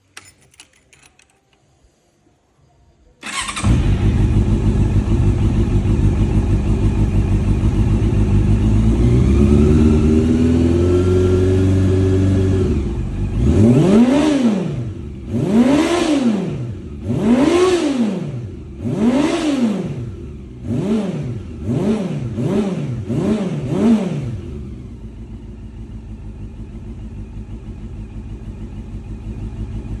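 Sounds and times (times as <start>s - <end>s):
motorcycle engine idling and revving: 3.2s - 30.0s.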